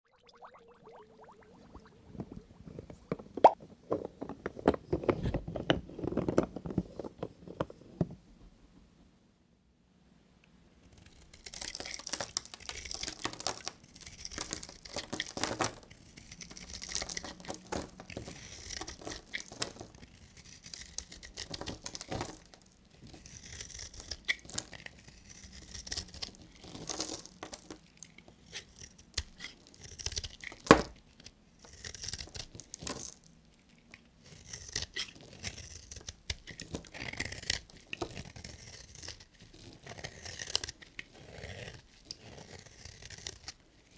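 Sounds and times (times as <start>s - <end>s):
knife cutting dry soap: 10.8s - 43.9s.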